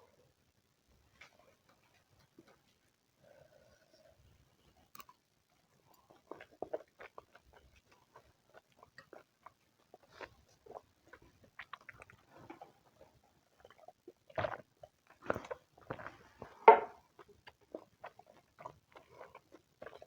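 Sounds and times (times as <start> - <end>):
person chewing: 5.9 - 20.0.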